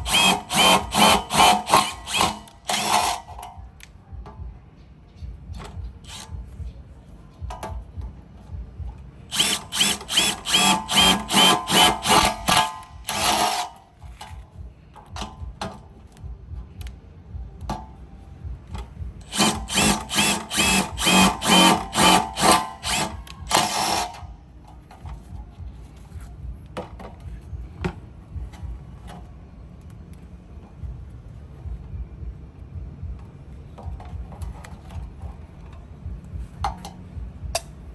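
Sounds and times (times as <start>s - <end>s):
impact driver pulsing: 0.0s - 3.5s, 9.3s - 14.4s, 18.7s - 24.4s.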